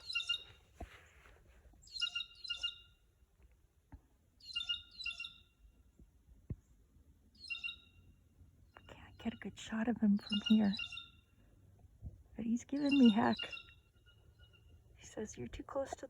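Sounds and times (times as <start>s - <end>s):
blue jay harsh scolding calls: 10.2s - 11.1s.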